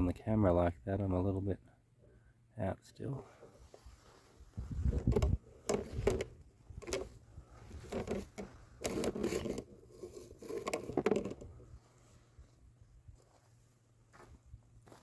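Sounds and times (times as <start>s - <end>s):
irregular scrapes and knocks: 3.3s - 11.7s.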